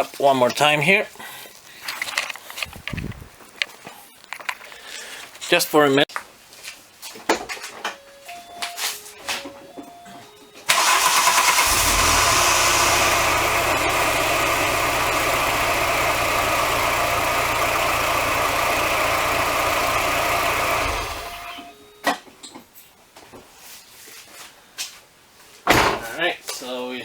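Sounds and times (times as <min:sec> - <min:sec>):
car engine idling: 0:10.7 - 0:21.7.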